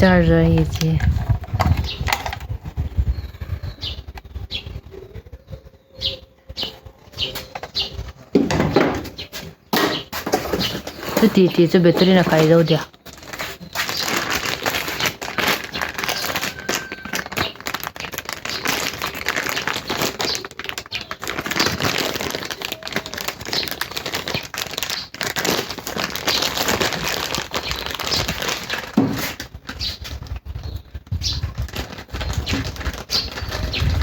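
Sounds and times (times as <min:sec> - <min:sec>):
packaging crinkling: 0:10.2 - 0:34.0.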